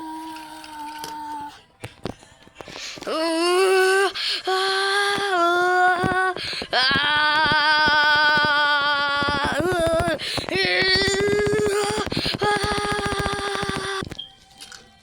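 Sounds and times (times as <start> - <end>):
high voice singing held notes: 2.8 - 14.2.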